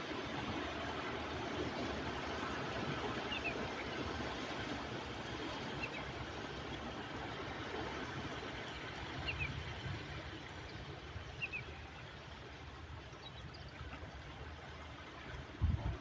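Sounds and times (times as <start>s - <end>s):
sea surf on shore: 0.0s - 16.0s.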